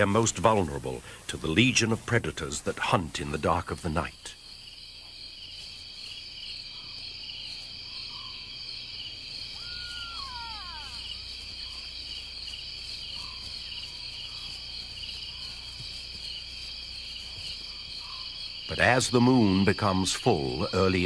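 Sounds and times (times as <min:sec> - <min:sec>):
crickets trilling: 0:00.0 - 0:21.0
short falling call: 0:09.6 - 0:11.2.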